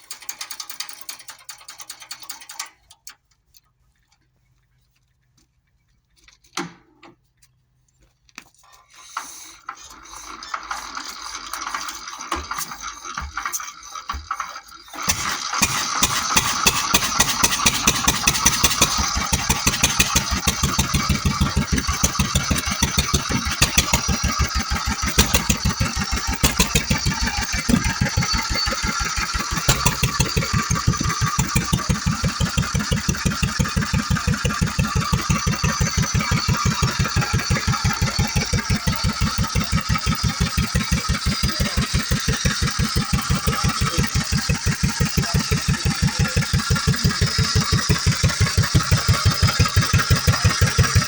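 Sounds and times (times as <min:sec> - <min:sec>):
car engine starting and idling: 0:14.1 - 0:51.0.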